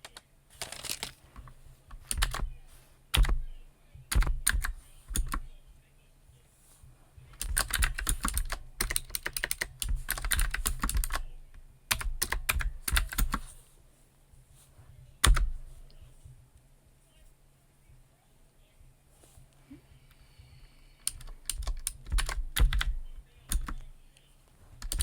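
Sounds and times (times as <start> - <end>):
computer keyboard typing: 0.0 - 3.5, 4.1 - 5.5, 7.3 - 13.6, 15.2 - 16.0, 21.0 - 23.9, 24.8 - 25.0.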